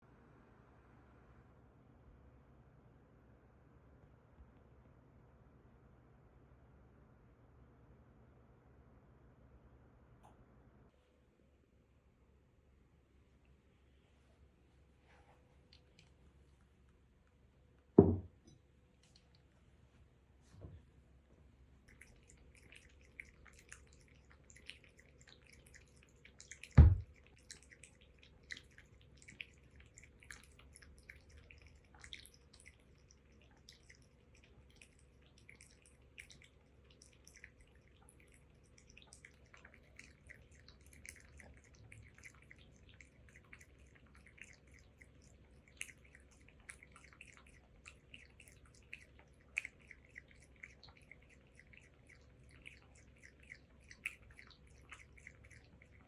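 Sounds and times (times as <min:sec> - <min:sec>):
loud thump: 0:18.0 - 0:18.3, 0:26.8 - 0:27.0
cat lapping milk: 0:21.6 - 0:56.0.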